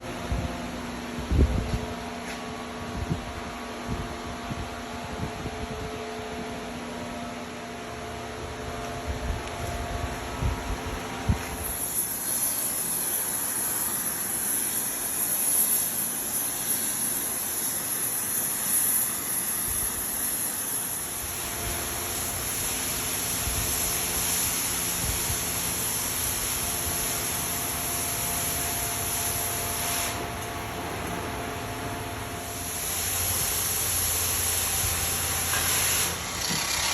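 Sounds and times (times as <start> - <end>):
gas torch hissing: 10.4 - 36.9.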